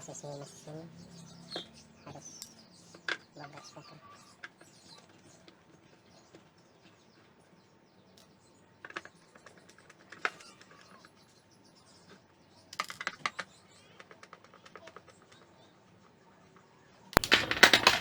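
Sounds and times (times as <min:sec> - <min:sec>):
sharp clicks and taps: 0:17.2 - 0:18.0.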